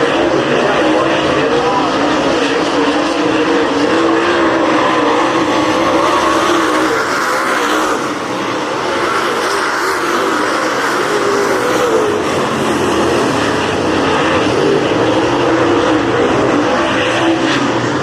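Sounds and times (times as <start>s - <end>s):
race car engines droning: 0.0s - 18.0s.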